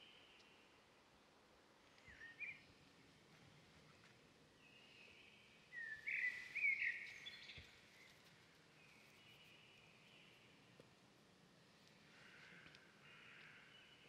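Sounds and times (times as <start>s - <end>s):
faint outdoor background hiss: 0.0s - 14.0s
small birds chirping: 4.6s - 11.0s.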